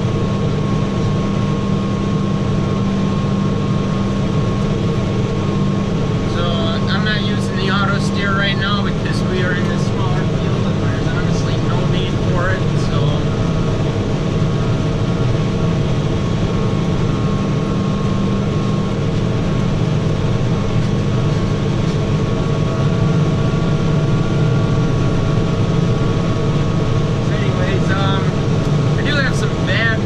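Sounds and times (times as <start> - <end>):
tractor engine droning: 0.0 - 30.0.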